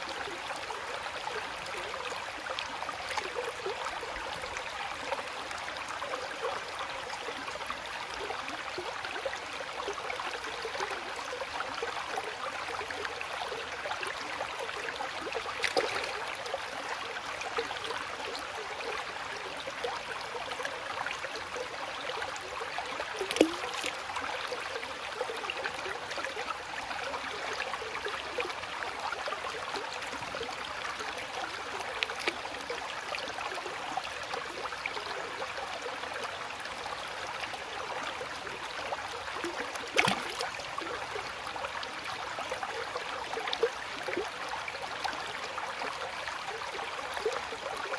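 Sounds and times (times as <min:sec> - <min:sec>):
water trickling and gurgling: 0:00.0 - 0:47.9
water plops: 0:15.6 - 0:16.2, 0:23.2 - 0:24.0, 0:39.7 - 0:40.5.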